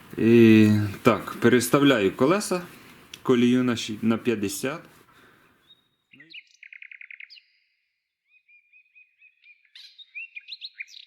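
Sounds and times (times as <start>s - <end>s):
songbird trilling and chirping: 5.6s - 11.0s.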